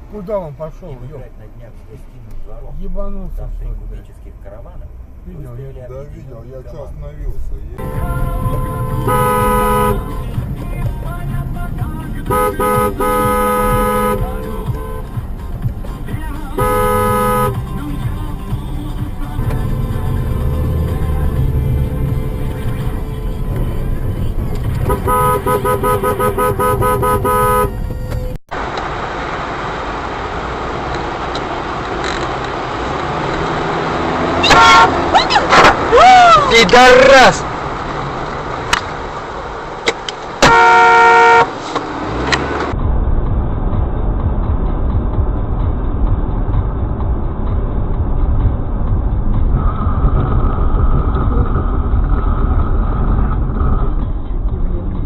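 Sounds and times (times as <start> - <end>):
road and engine noise inside car: 0.0 - 55.0
car horn short beeps: 7.8 - 10.5, 12.2 - 15.2, 16.6 - 17.7, 24.8 - 28.3, 40.4 - 41.6.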